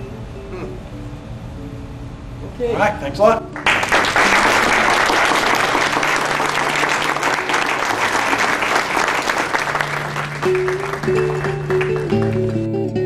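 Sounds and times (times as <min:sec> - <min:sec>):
audience applauding: 0:03.6 - 0:12.8.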